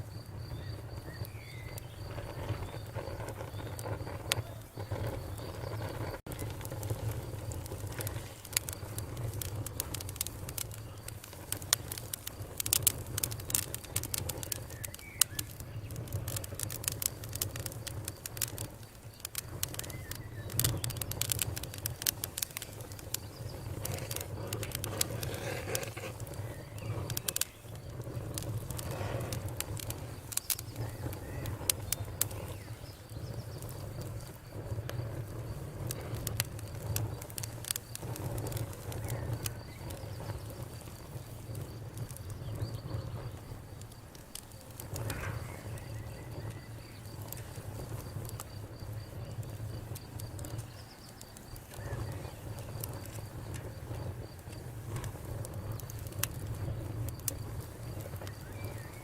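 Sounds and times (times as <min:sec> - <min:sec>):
campfire crackling and popping: 0:00.0 - 0:59.0
low rumble of flame: 0:00.0 - 0:59.0.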